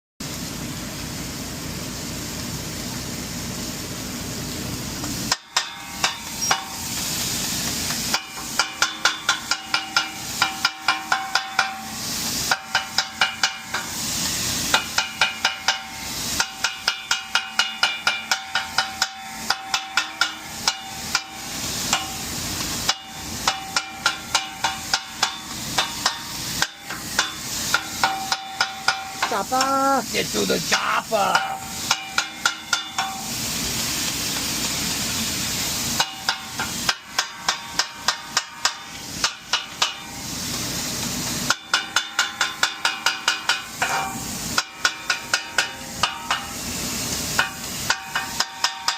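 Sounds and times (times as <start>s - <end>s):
meat sizzling: 0.2s - 48.9s
metal spatulas clanking on griddle: 5.3s - 29.8s, 31.2s - 33.4s, 36.0s - 40.6s, 41.5s - 46.6s, 47.3s - 48.9s.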